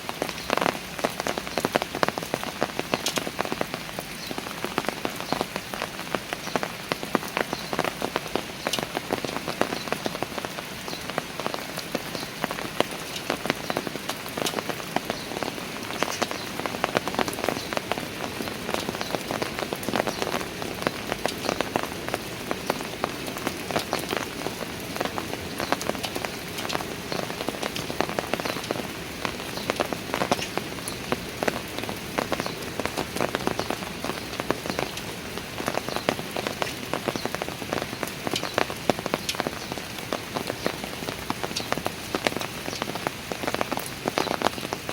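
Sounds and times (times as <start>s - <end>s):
rain pattering on stone steps: 0.0s - 44.9s.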